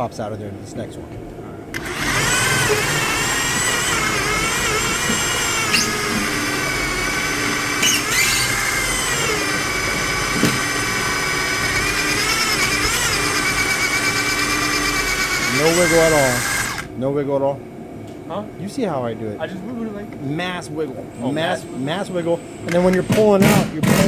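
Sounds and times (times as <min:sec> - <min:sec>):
power drill whining: 0:01.7 - 0:16.9, 0:21.2 - 0:24.0.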